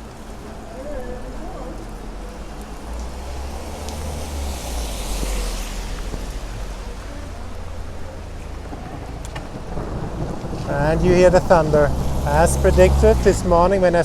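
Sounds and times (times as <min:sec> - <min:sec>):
steady rain: 0:00.0 - 0:14.0
thunder rumbling: 0:00.0 - 0:14.0.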